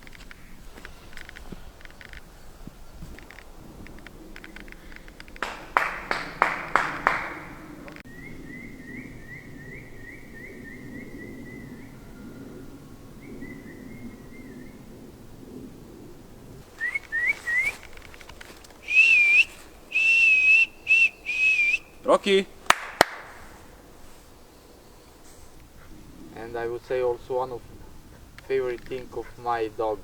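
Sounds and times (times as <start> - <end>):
rising whistled notes: 16.7 - 18.1, 18.8 - 22.1.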